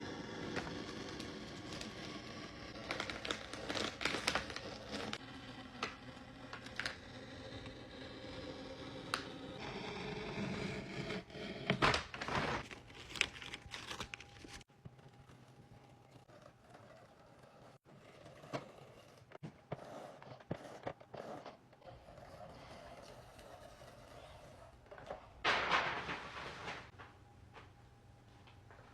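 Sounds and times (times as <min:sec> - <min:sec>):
paper being cut and ripped: 0:00.2 - 0:14.7.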